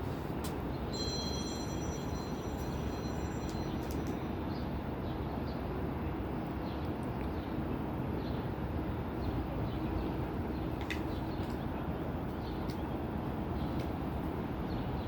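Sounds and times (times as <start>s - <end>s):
train rumbling past: 0.0s - 6.4s
high squeal: 0.9s - 4.2s.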